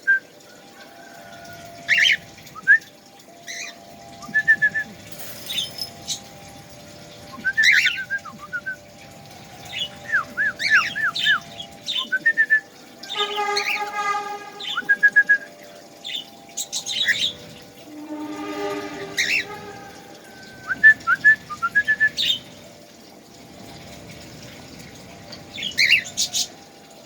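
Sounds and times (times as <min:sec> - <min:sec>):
bird chirping and whistling: 0:01.9 - 0:06.2, 0:07.3 - 0:08.9, 0:09.7 - 0:13.7, 0:14.6 - 0:15.6, 0:20.6 - 0:22.5
harsh bird calls: 0:18.6 - 0:20.8.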